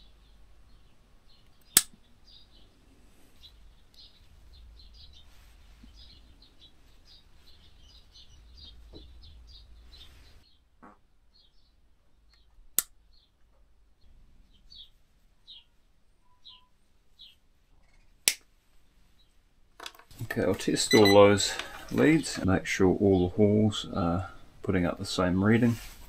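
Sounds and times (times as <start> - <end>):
small birds chirping: 0.0 - 18.3, 20.2 - 26.0
sharp click: 1.6 - 2.0.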